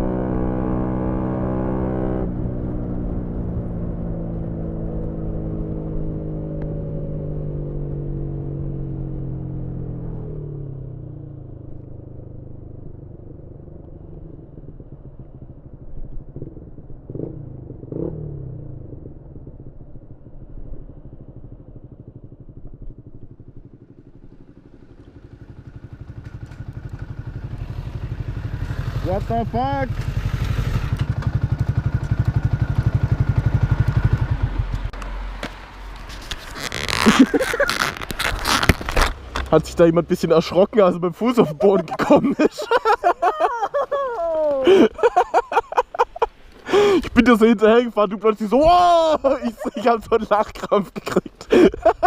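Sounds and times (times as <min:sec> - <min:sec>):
motorcycle engine revving: 0:00.0 - 0:43.3.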